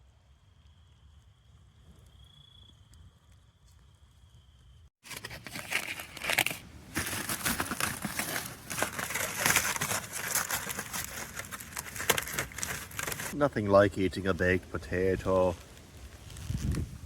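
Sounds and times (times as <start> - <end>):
aluminium foil crinkling: 5.0 - 13.4, 15.4 - 16.9.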